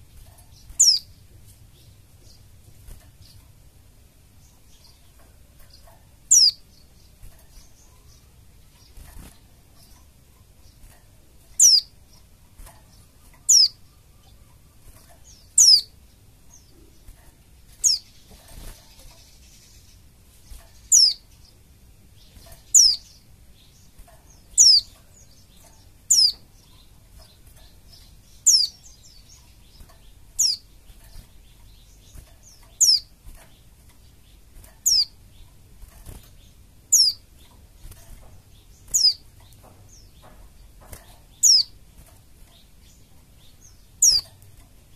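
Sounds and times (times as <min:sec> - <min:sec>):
bird sharp chirps: 0:00.5 - 0:01.2, 0:06.3 - 0:06.6, 0:11.6 - 0:11.9, 0:12.9 - 0:16.0, 0:20.5 - 0:21.6, 0:22.2 - 0:30.7, 0:31.4 - 0:37.2, 0:38.6 - 0:39.3, 0:41.3 - 0:41.8, 0:42.5 - 0:44.4.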